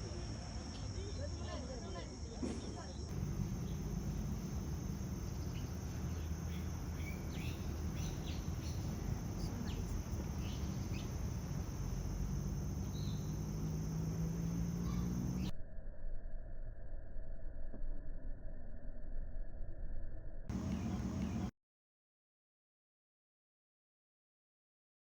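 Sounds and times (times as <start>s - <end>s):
high insect drone: 0.0s - 17.5s, 20.5s - 21.5s
bird chirps: 3.0s - 15.5s, 20.5s - 21.5s
low steady hum: 3.1s - 15.5s, 20.5s - 21.5s.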